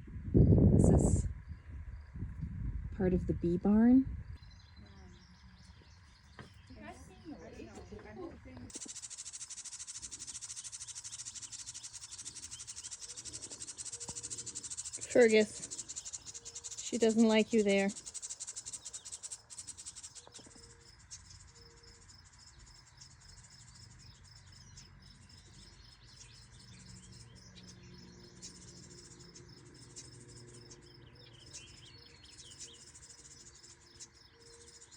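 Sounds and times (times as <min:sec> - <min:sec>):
bird chirps: 0:04.1 - 0:08.0, 0:08.6 - 0:34.9
high-pitched insect trill: 0:08.7 - 0:34.9.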